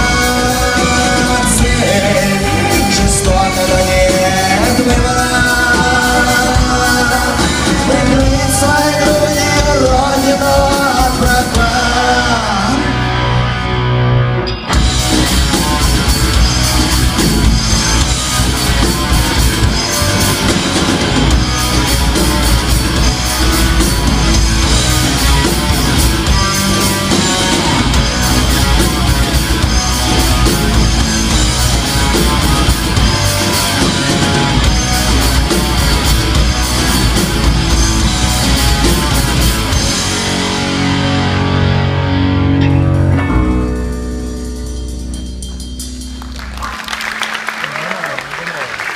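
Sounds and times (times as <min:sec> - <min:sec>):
electric guitar lead: 0:00.0 - 0:48.9
rock band playing: 0:00.0 - 0:48.9.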